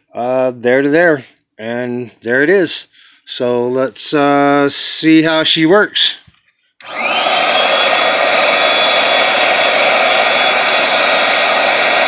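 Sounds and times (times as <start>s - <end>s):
air pump motor rushing air: 6.8s - 12.0s.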